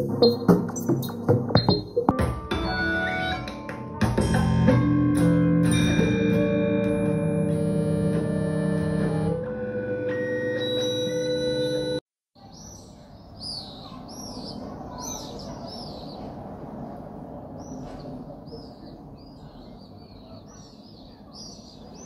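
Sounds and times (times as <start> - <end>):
synth music: 0.0 - 12.0
birds chirping: 10.2 - 22.0
outdoor background noise: 12.3 - 22.0.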